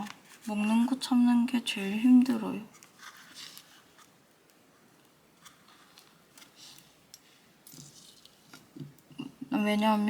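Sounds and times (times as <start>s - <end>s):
paper rustling: 2.7s - 8.8s.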